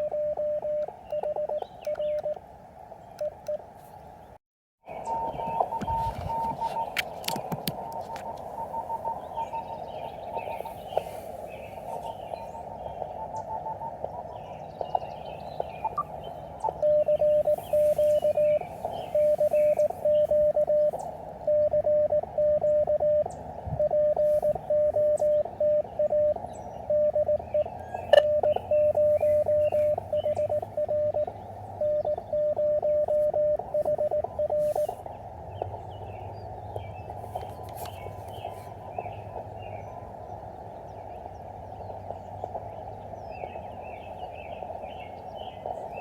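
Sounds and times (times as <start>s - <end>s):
morse code tone: 0.0s - 2.4s, 5.0s - 9.8s, 15.8s - 35.1s
radio receiver hiss: 4.9s - 35.3s.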